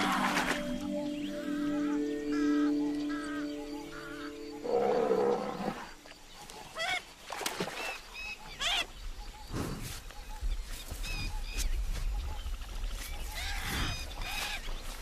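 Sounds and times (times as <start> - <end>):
background music with held tones: 0.0 - 5.7.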